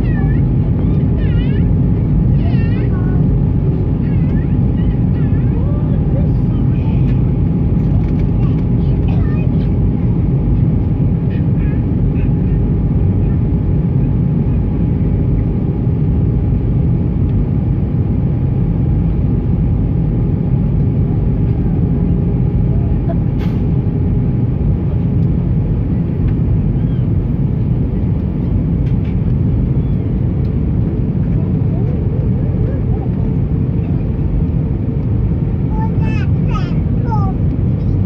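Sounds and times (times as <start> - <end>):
airplane cabin engine rumble: 0.0 - 38.0
faint constant hum: 0.0 - 38.0.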